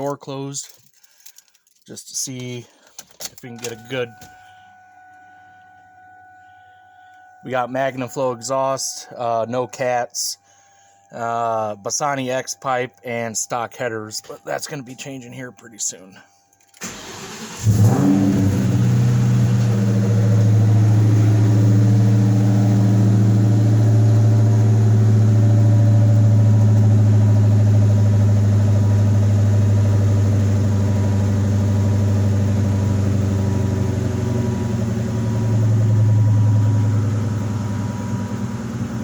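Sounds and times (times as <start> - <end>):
car engine fast idle: 16.8 - 39.0.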